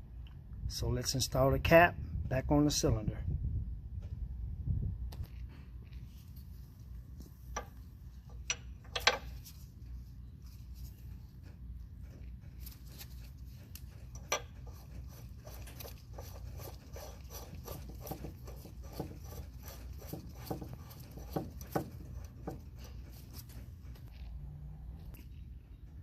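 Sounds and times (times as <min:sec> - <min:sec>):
metal cap scraping on metal: 0:14.0 - 0:23.4.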